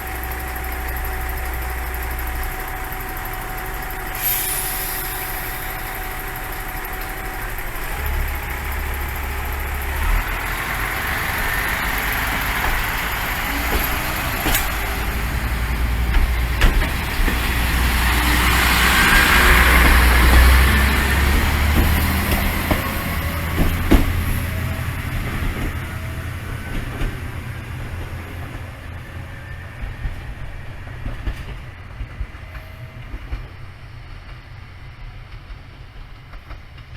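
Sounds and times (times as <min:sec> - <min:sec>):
diesel railcar engine rumbling: 0:00.0 - 0:36.9.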